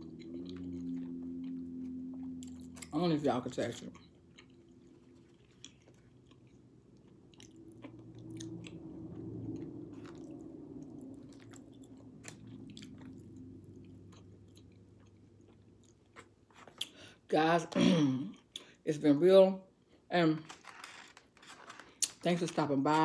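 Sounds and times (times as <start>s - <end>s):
person chewing food: 0.0s - 17.2s
faint low hum: 0.0s - 23.0s.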